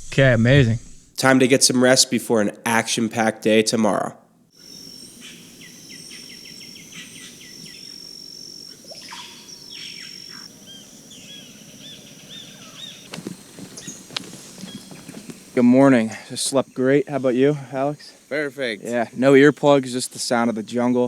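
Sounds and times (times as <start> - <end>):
high-pitched insect drone: 4.6 - 21.0
rapid chirping calls: 4.6 - 21.0
slow looping calls: 4.6 - 21.0.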